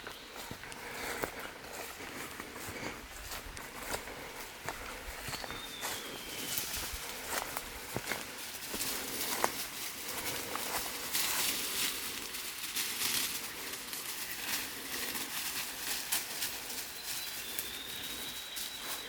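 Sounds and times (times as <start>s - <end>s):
footsteps crunching on wet trail: 0.0s - 19.0s.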